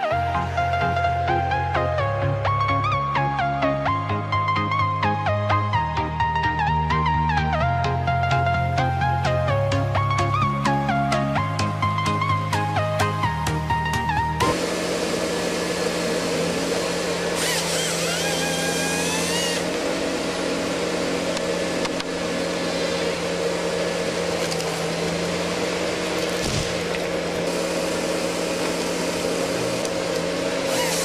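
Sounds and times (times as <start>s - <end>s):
heavy machine engine running: 7.0s - 31.0s
wavering whine: 14.2s - 31.0s.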